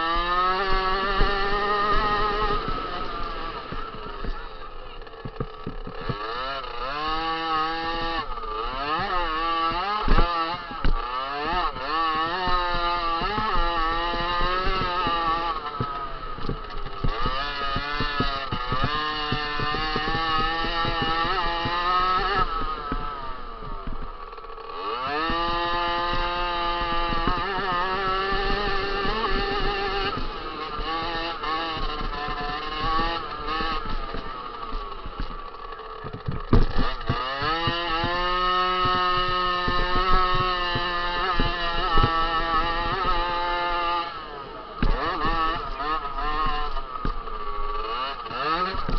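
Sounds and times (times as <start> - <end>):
motocross bike engine revving: 0.0 - 48.9
thump: 36.0 - 37.2.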